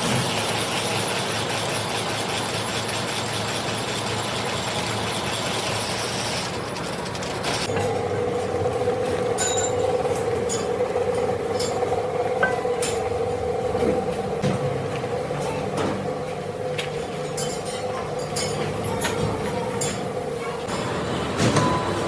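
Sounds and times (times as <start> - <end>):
machine hissing and whining: 20.2 - 22.0.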